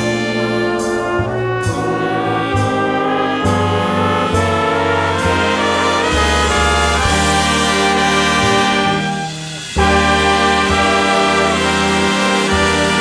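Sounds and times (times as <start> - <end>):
bass line: 0.0 - 13.0
jazz big band playing: 0.0 - 13.0
trumpets and trombones chords: 0.0 - 13.0.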